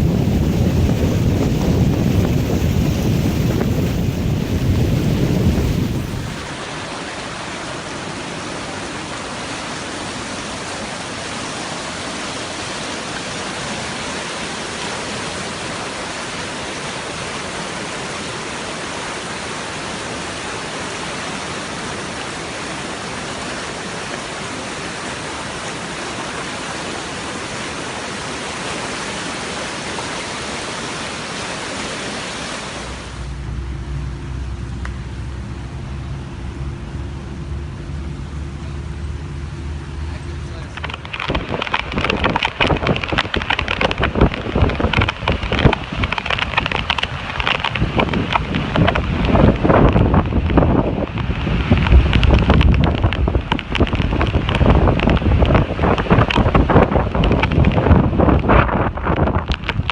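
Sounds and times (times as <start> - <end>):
wind buffeting microphone: 0.0 - 6.6, 40.5 - 59.9
rushing hiss of water: 0.0 - 34.6.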